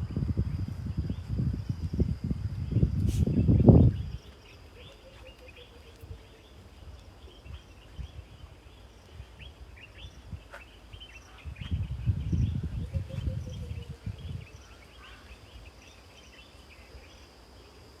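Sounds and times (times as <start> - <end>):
high insect buzz: 0.0 - 8.2, 8.8 - 18.0
birds chirping and calling: 3.4 - 16.5.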